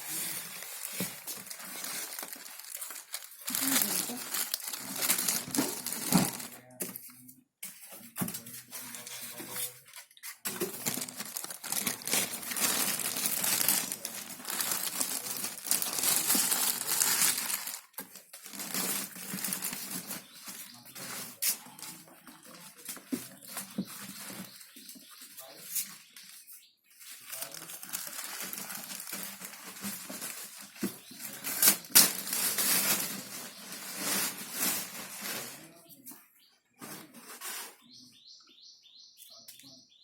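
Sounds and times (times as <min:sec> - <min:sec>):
packaging wrap crinkling: 0:00.0 - 0:06.6, 0:10.5 - 0:21.9, 0:27.2 - 0:35.4.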